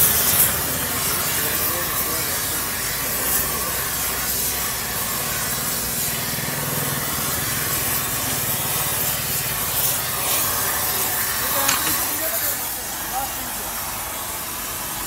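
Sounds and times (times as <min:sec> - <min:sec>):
workshop machine hiss: 0:00.0 - 0:15.0.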